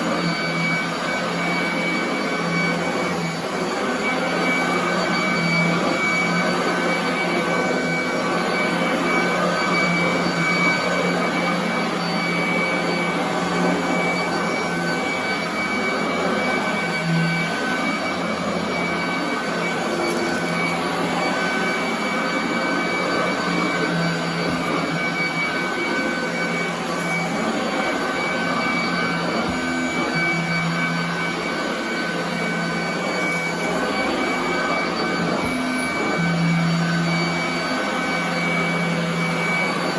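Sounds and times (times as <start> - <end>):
vacuum cleaner motor whine: 0.0 - 39.9.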